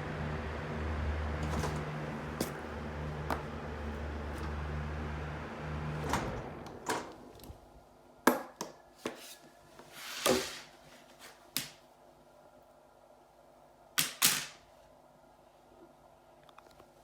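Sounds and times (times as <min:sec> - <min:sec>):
ventilation fan humming: 0:00.0 - 0:08.4.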